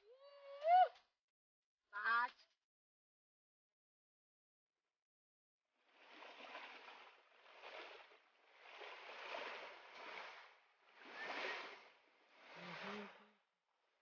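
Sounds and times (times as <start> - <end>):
faint rushing water: 5.8 - 13.4.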